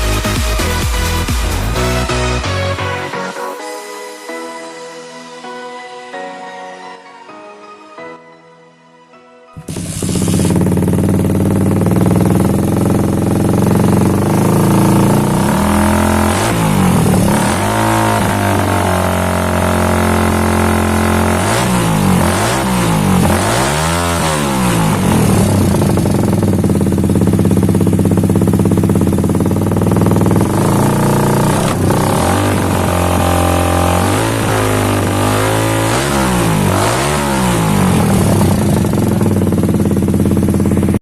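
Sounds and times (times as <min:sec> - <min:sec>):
motorcycle engine revving: 0:09.6 - 0:41.0.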